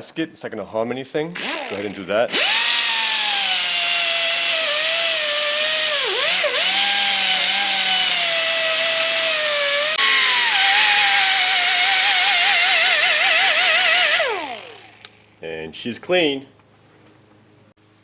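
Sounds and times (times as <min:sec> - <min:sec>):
power tool whining: 0:01.4 - 0:15.2.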